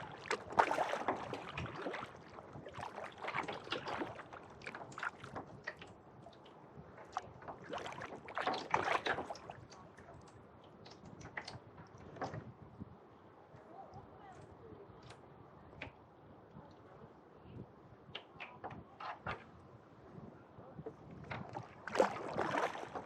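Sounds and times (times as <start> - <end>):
water splashes and drips: 0.0 - 12.5, 21.2 - 23.0
paddle strokes in water: 0.0 - 12.9, 18.1 - 23.0.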